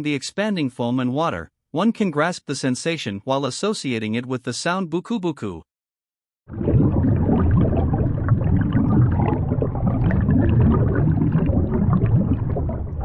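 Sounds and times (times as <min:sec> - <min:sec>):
water bubbling and gurgling: 0:06.5 - 0:13.0.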